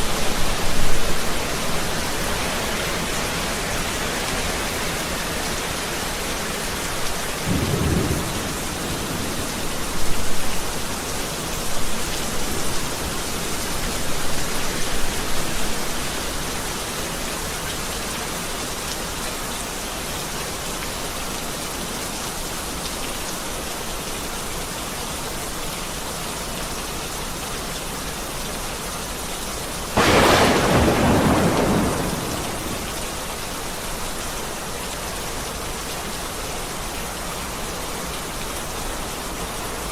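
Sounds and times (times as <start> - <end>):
heavy rain falling: 0.0 - 39.9
loud thunderclap: 7.4 - 10.5, 30.0 - 33.4
low thunder rumbling: 7.4 - 10.9, 30.0 - 33.8.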